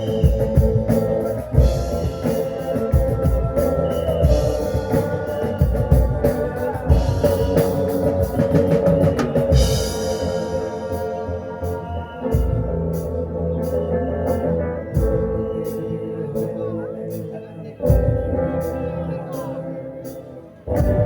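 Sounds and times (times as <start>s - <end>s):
cymbal wash: 0.0s - 14.5s
rock band instrumental: 0.0s - 21.0s.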